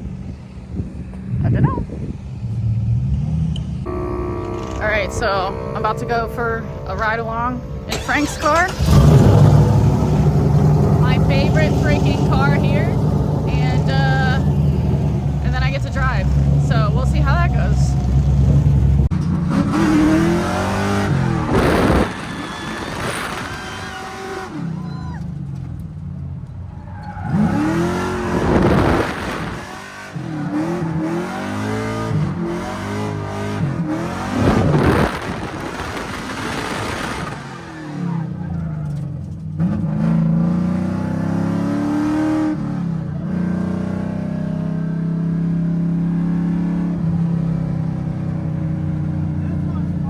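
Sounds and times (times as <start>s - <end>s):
car engine revving: 0.0s - 50.0s
tyre squeal: 19.6s - 25.6s, 26.5s - 29.6s.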